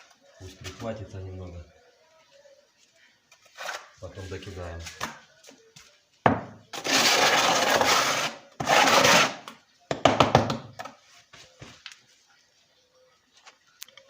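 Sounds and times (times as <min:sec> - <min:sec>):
knock: 0:06.3 - 0:06.6, 0:09.9 - 0:10.7
steel trowel scraping mortar: 0:06.7 - 0:09.5.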